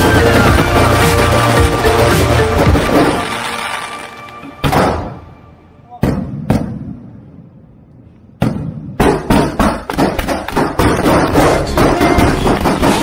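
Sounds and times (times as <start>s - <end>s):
fireworks bangs: 0.0s - 5.4s, 8.4s - 13.0s.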